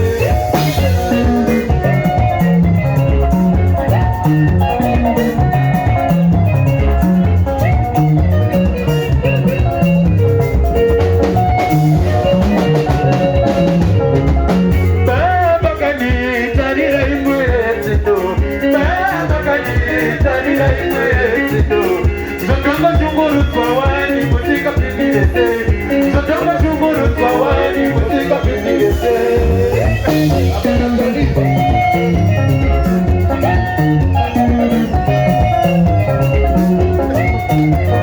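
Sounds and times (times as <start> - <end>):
bass and drums beat: 0.0 - 38.0
electric guitar lines: 0.0 - 38.0.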